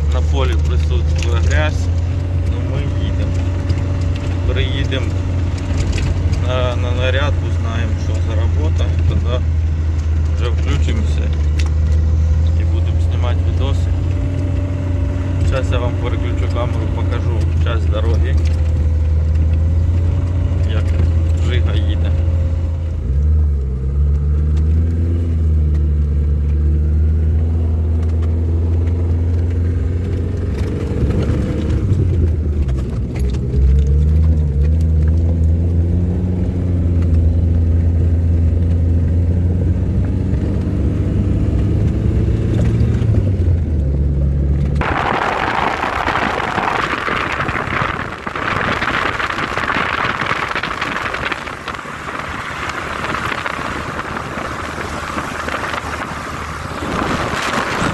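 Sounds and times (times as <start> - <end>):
car engine hum: 0.0 - 57.9
road rumble: 0.0 - 57.9
steady rushing noise: 44.7 - 57.9.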